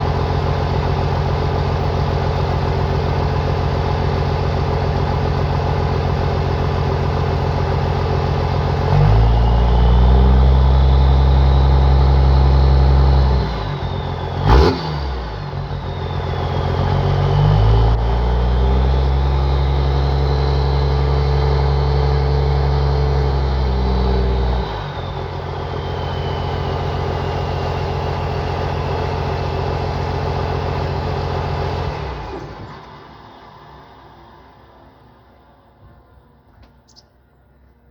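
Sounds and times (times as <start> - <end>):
diesel engine idling and revving: 0.0 - 37.9
high turbo whistle: 8.8 - 35.7.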